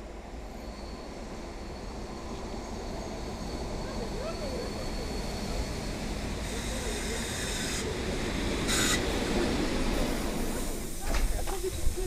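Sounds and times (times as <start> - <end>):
passenger train rumbling: 0.0 - 12.0
air hiss: 8.6 - 9.0.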